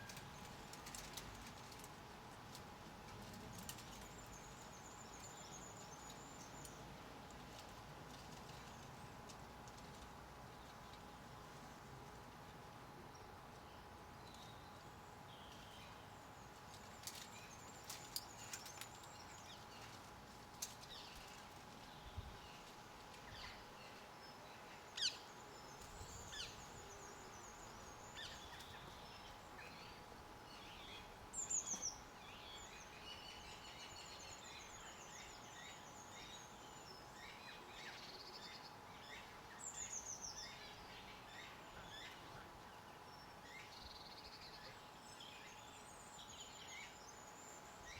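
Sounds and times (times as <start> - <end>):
faint steady hum: 0.0 - 47.9
small birds chirping: 13.1 - 47.9.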